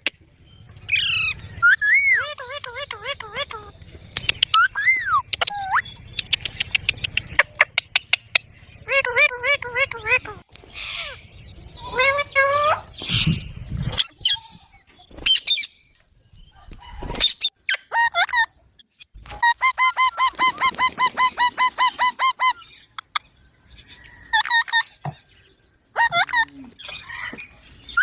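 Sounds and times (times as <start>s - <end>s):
parrot squawking and screeching: 0.9s - 3.8s, 4.5s - 6.0s, 11.8s - 14.6s.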